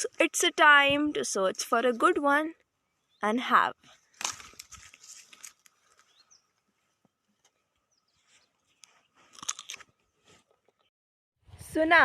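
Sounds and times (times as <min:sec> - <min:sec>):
bird chirp: 0:02.8 - 0:03.4, 0:05.9 - 0:09.2
leaves rustling and crunching: 0:03.9 - 0:06.2.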